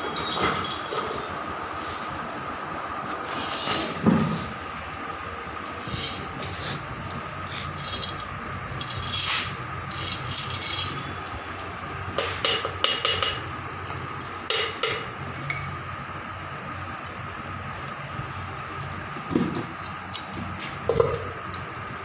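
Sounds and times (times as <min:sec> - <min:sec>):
hand tool scraping: 0:07.4 - 0:11.1.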